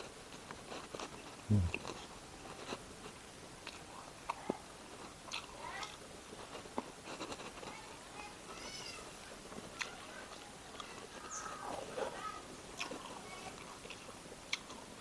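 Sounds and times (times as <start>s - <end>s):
person chewing food: 0.3s - 7.8s, 12.8s - 15.0s.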